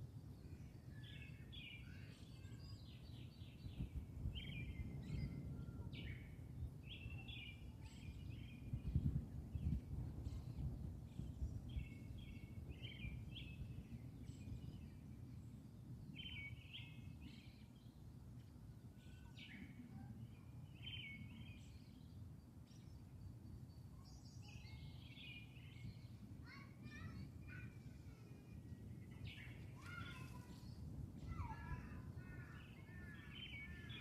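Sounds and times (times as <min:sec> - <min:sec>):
small birds chirping: 0:00.3 - 0:15.4, 0:16.0 - 0:34.0.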